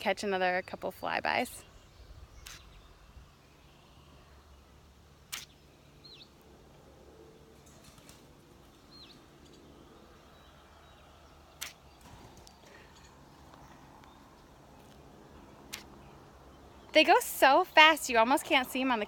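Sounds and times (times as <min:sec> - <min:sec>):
swallows chirping: 0:01.6 - 0:06.4, 0:08.7 - 0:17.1.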